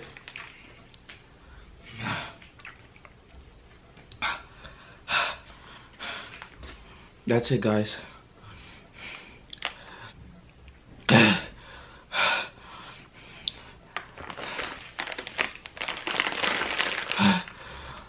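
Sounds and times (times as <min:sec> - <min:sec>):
person gasping: 0:17.1 - 0:18.0.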